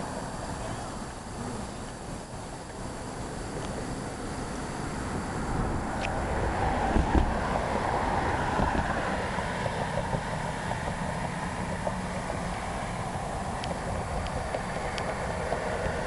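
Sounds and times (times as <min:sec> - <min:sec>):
bicycle tyre rumble: 0:00.0 - 0:16.0
wind rushing over microphone: 0:03.3 - 0:16.0
faint ticks and rattles: 0:08.6 - 0:16.0.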